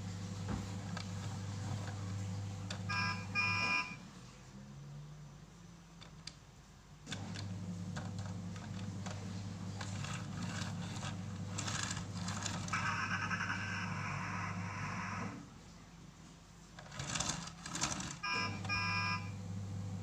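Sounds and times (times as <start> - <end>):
gears clicking: 9.8 - 13.0, 16.8 - 18.3
toy motor whirring: 9.8 - 15.3, 16.8 - 19.2.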